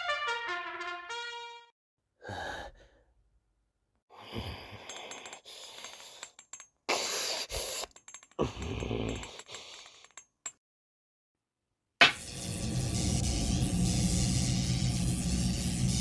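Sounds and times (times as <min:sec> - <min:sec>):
brass music: 0:00.0 - 0:01.7
person making breathy vocal noises: 0:02.2 - 0:03.1, 0:04.1 - 0:06.2, 0:06.9 - 0:10.0.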